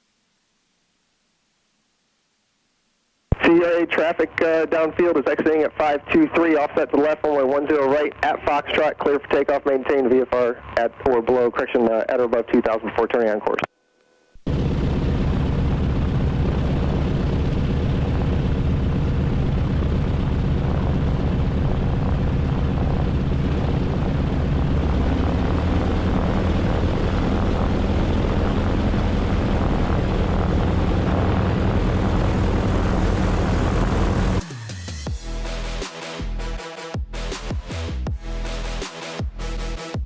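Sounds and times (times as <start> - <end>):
propeller plane engines droning: 14.5 - 35.0.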